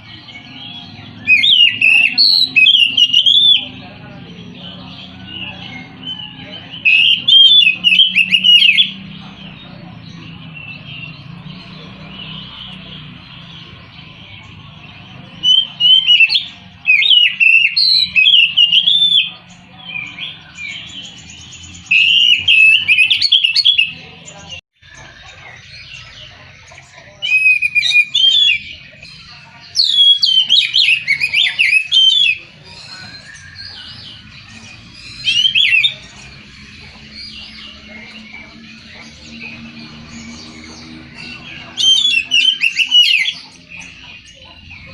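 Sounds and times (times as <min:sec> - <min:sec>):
bird singing whistled phrases: 0:01.2 - 0:03.8, 0:05.2 - 0:09.0, 0:15.4 - 0:19.3, 0:21.8 - 0:24.0, 0:27.3 - 0:28.7, 0:29.8 - 0:34.1, 0:40.8 - 0:43.5.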